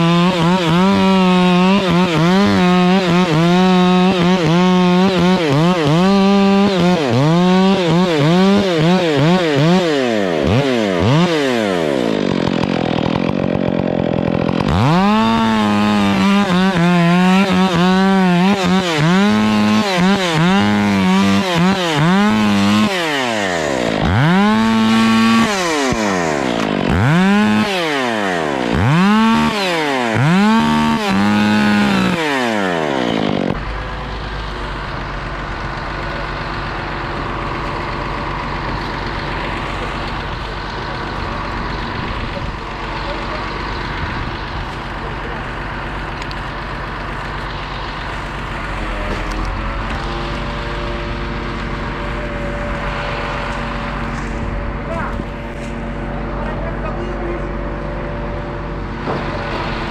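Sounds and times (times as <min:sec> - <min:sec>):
chainsaw revving: 0:00.0 - 0:59.9
low engine rumble: 0:33.5 - 0:59.9.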